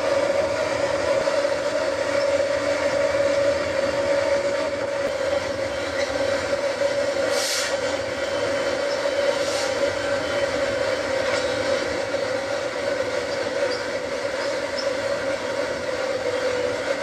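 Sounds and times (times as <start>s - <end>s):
train rumbling on track: 0.0s - 17.0s
short hiss: 7.3s - 7.8s.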